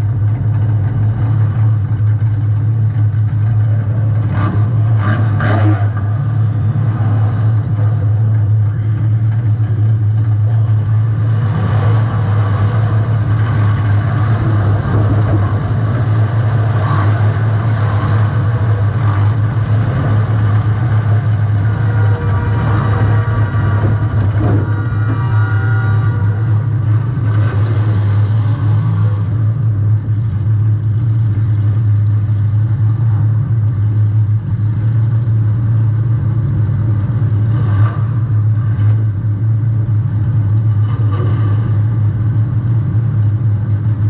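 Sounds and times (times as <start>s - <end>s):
knocks and clatters: 0.0s - 28.6s
car engine running loud: 0.0s - 44.0s.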